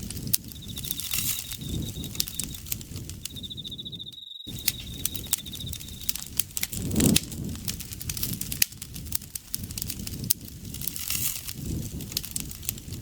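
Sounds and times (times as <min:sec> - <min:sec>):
campfire crackling and popping: 0:00.0 - 0:13.0
insect trilling: 0:00.2 - 0:06.4.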